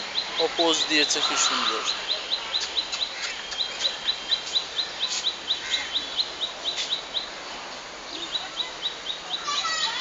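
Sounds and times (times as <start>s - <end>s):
sharp bird calls: 0.0s - 7.4s
bird chirping: 0.0s - 10.0s.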